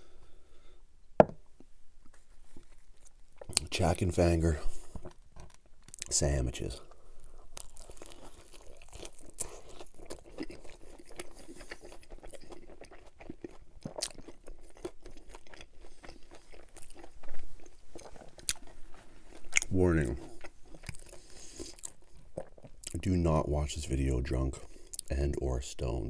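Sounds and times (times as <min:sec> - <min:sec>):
crunchy chewing of pizza crust: 0:02.1 - 0:03.8, 0:04.5 - 0:23.2.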